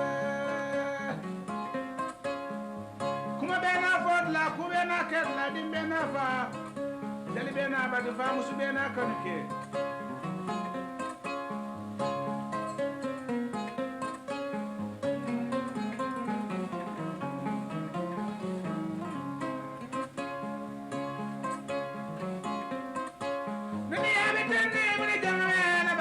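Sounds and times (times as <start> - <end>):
person singing: 0.0 - 1.8, 3.3 - 6.7, 23.9 - 26.0
harp-lute plucked notes: 0.0 - 26.0.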